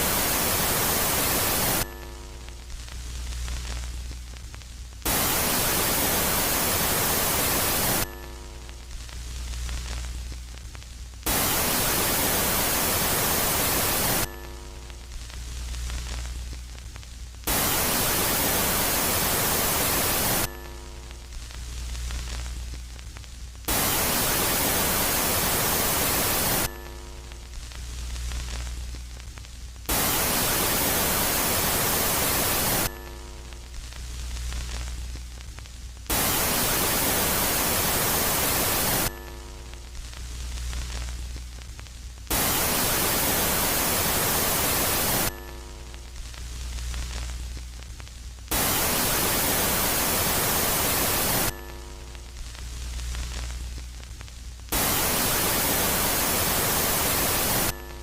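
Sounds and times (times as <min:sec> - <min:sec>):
static hiss bursts: 0:00.0 - 0:58.0
low hum with pitched tones: 0:01.8 - 0:05.1.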